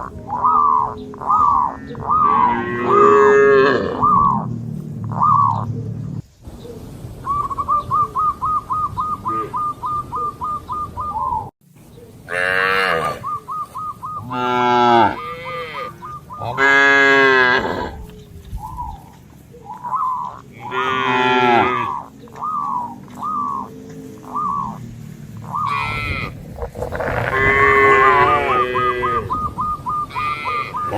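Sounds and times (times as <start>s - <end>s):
cattle mooing: 0.0s - 6.2s, 12.3s - 13.4s, 14.1s - 18.1s, 20.2s - 30.9s.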